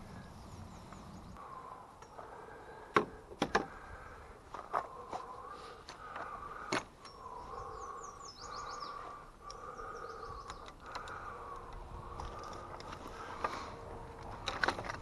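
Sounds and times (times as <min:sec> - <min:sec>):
small bird chirping: 0:00.0 - 0:01.4, 0:07.0 - 0:11.4
steady wavering hum: 0:00.0 - 0:14.5
sharp clicks: 0:10.4 - 0:13.0.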